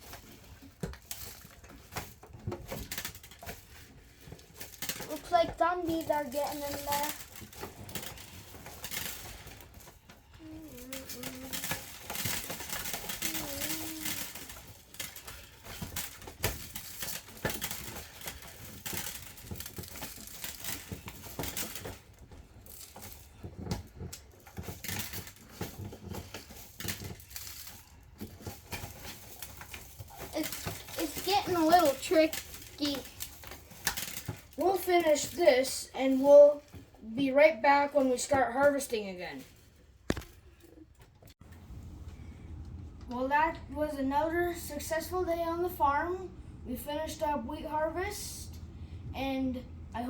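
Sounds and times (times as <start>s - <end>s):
rice and beads rattling on plastic toys: 0.0s - 36.7s
toys clicking and knocking: 0.0s - 36.8s.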